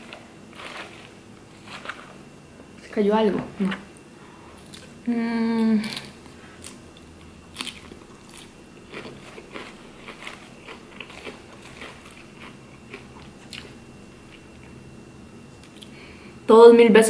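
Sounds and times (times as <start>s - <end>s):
lettuce crunching while chewing: 0.0s - 2.2s, 4.6s - 5.0s, 5.6s - 14.8s.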